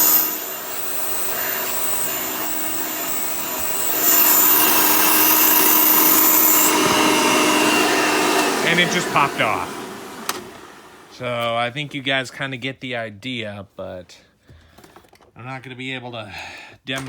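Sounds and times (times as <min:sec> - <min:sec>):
air leaking: 0:00.0 - 0:07.8
vacuum motor whining: 0:00.0 - 0:11.2.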